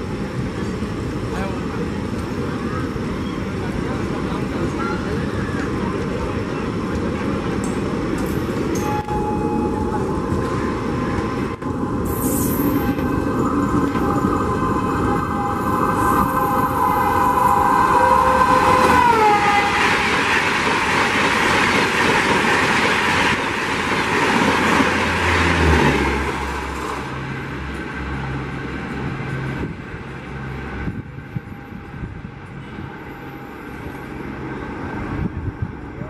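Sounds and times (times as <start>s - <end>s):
rush of train coaches passing: 0.0s - 36.0s
locomotive horn: 15.0s - 19.9s.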